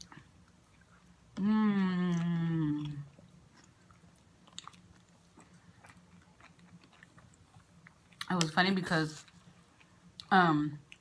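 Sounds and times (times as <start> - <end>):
person humming: 1.4 - 3.1
crunchy chewing: 1.9 - 10.3.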